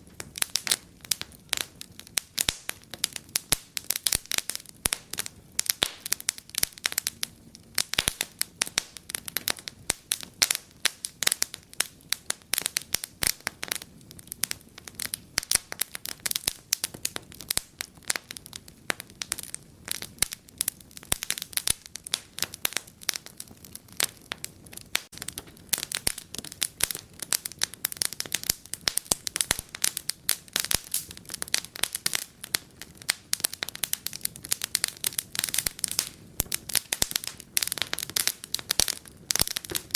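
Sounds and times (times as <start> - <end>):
low steady fire hiss: 0.0 - 39.9
wood fire crackling and popping: 0.0 - 39.9.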